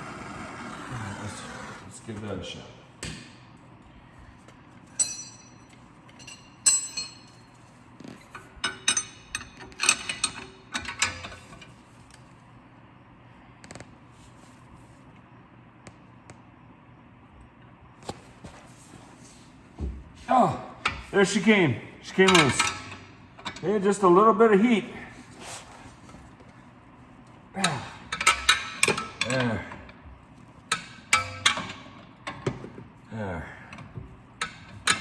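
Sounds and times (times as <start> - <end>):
metal tools clanking on bolt: 22.2 - 23.6.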